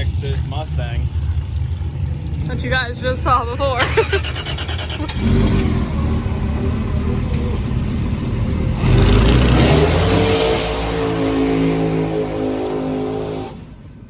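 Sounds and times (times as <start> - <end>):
car engine running: 0.0 - 10.2.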